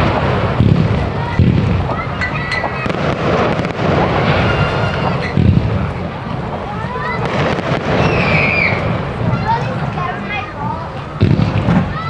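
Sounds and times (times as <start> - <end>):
sharp firework bang: 0.0 - 9.9, 11.2 - 12.0
crowd voices: 0.0 - 12.0
fireworks booming: 0.0 - 12.0
high shout or squeal: 4.1 - 5.4, 8.0 - 8.9.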